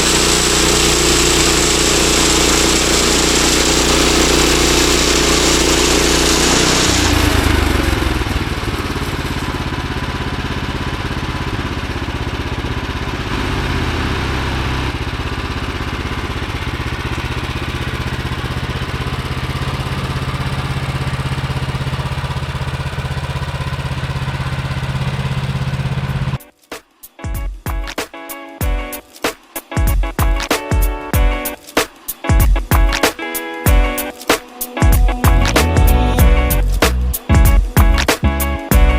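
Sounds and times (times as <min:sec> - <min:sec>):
saw blade cutting log: 0:00.0 - 0:08.9
small gasoline engine running: 0:00.0 - 0:26.4, 0:32.4 - 0:34.1, 0:34.8 - 0:38.9.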